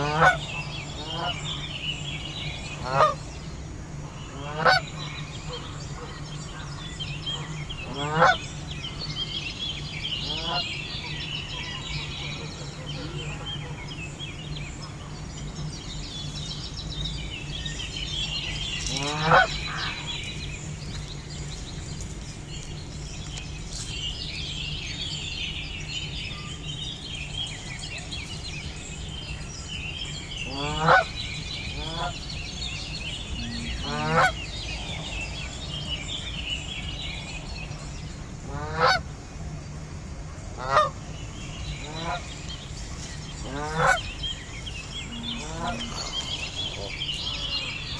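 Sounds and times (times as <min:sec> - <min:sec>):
geese honking: 0:00.0 - 0:03.3, 0:04.4 - 0:09.0, 0:09.8 - 0:16.0, 0:18.5 - 0:21.0, 0:30.4 - 0:36.9, 0:38.5 - 0:39.0, 0:41.8 - 0:47.9
steady low hum: 0:41.8 - 0:47.9.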